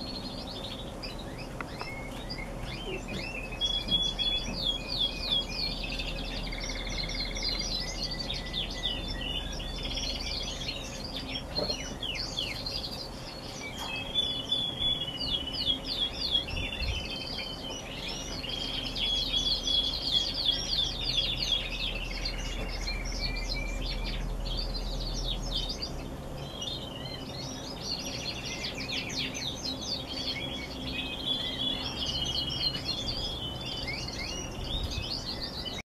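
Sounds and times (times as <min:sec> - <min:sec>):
canaries singing: 0:00.0 - 0:35.8.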